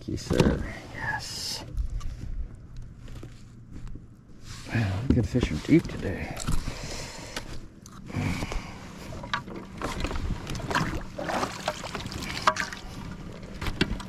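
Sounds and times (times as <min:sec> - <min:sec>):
faint steady hum: 0:00.0 - 0:14.0
water noise: 0:09.1 - 0:13.4.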